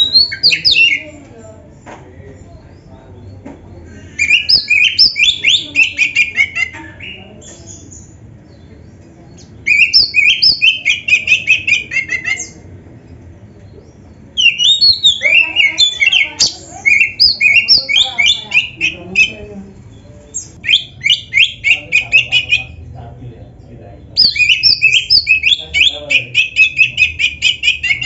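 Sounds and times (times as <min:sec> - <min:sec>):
bird singing whistled chattering notes: 0:00.0 - 0:01.0, 0:04.2 - 0:08.7, 0:09.3 - 0:12.6, 0:14.4 - 0:19.4, 0:24.2 - 0:28.0.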